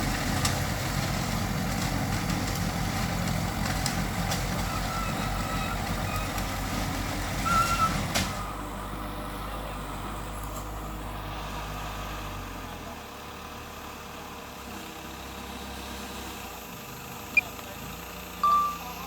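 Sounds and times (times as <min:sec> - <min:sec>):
heavy diesel engine under load: 0:00.0 - 0:19.0
short high-pitched tone: 0:18.4 - 0:19.0.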